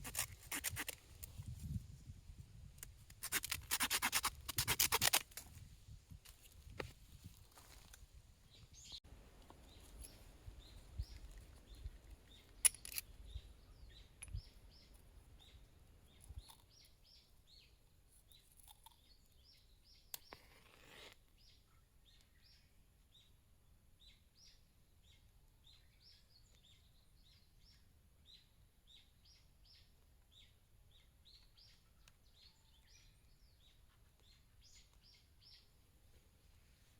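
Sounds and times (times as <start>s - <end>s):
rapid rasping strokes: 0.0s - 1.0s, 3.2s - 5.4s
small birds chirping: 8.5s - 36.9s.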